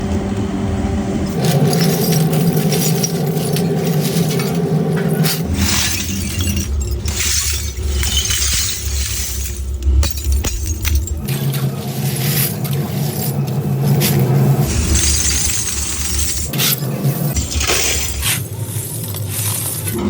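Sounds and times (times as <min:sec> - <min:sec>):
machine hum: 0:00.0 - 0:20.0
glass bottles clinking: 0:01.3 - 0:11.4, 0:14.0 - 0:18.5
glass breaking: 0:01.4 - 0:11.3, 0:14.7 - 0:16.6, 0:17.4 - 0:18.5.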